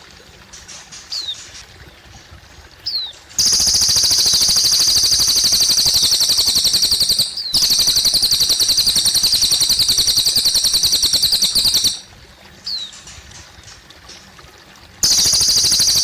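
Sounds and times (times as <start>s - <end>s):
bird singing rapid high trill: 2.8s - 12.1s, 15.0s - 16.0s.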